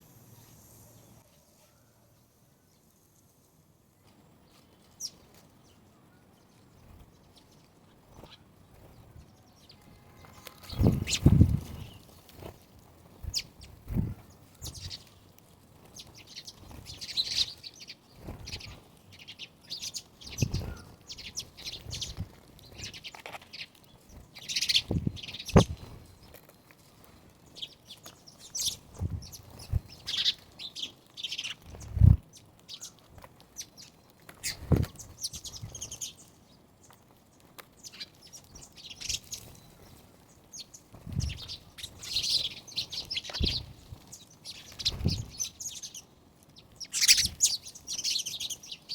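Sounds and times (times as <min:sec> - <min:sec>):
birds chirping: 0:00.3 - 0:48.9
wing flaps: 0:10.3 - 0:12.6, 0:31.6 - 0:32.2.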